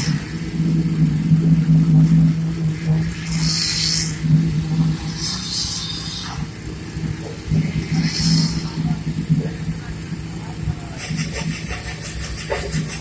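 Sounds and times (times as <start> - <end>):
diesel engine running: 0.0 - 13.0
short bursts of hissing: 3.2 - 4.2, 7.9 - 8.8.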